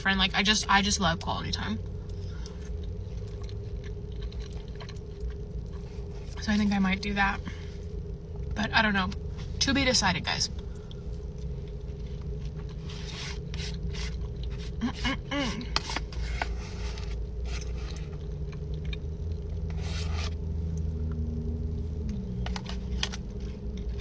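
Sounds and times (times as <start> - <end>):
low rumble and hum: 0.0 - 24.0
chewing fries: 1.8 - 6.4, 10.6 - 24.0.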